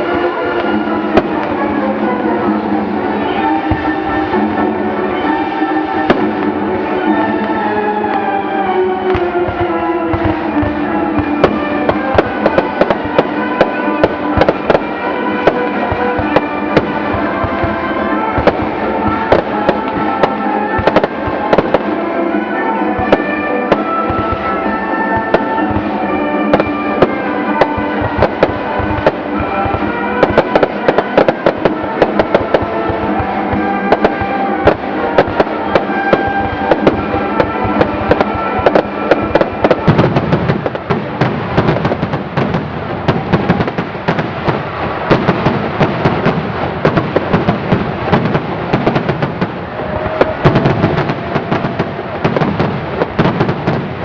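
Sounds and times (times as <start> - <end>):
fireworks bangs and crackles: 0.0 - 54.0
music: 0.0 - 54.0
deep firework boom: 25.2 - 54.0.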